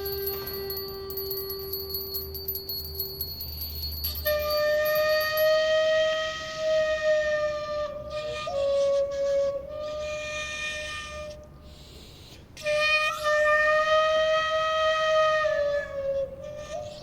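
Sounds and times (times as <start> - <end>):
flute playing long notes: 0.0 - 3.0, 4.2 - 11.5, 12.6 - 17.0.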